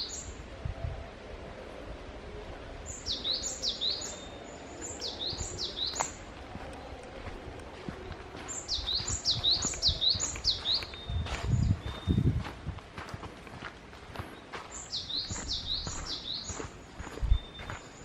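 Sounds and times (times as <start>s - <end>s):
songbird singing: 0.0s - 0.6s, 2.3s - 12.6s, 14.1s - 18.0s.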